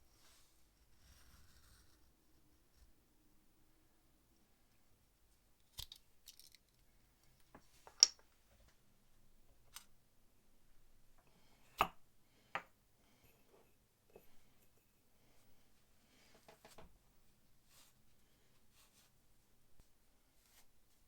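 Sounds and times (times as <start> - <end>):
clicks and taps of small objects: 5.6 - 8.7.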